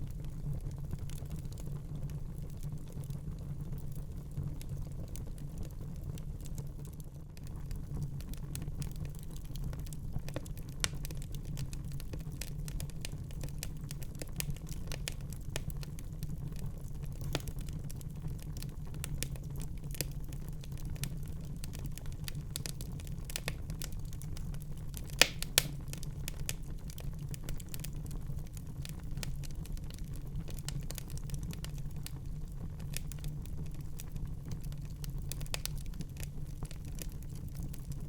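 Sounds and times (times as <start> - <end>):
wood fire crackling: 0.0 - 38.0
sharp fire pops: 25.1 - 26.1.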